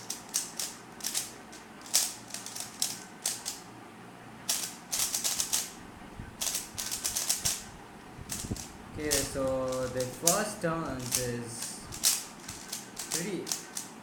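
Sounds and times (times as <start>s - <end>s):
plastic puzzle cube clacking: 0.0s - 3.6s, 8.3s - 13.9s.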